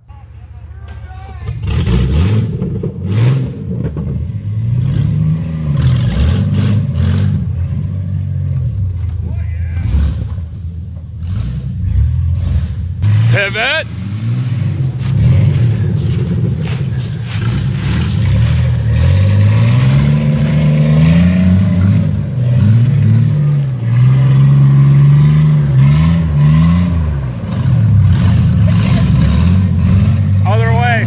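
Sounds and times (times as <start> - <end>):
truck engine revving: 0.0 - 31.0.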